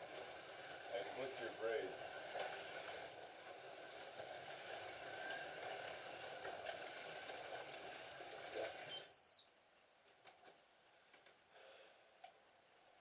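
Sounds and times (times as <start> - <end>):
slot cars whirring on track: 0.0 - 9.1.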